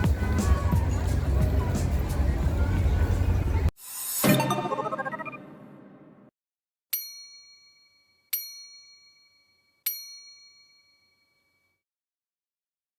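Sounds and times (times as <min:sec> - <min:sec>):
background music: 0:00.0 - 0:05.7
bell-like chime dinging: 0:07.0 - 0:11.8.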